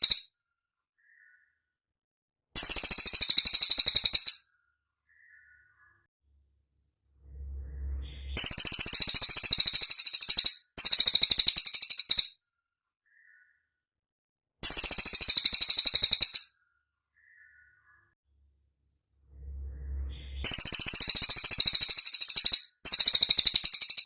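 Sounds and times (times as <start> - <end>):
high pulsed bird trills: 5.1 - 6.1, 7.1 - 12.3, 19.1 - 24.0
low rumble: 6.3 - 9.1, 18.3 - 21.1.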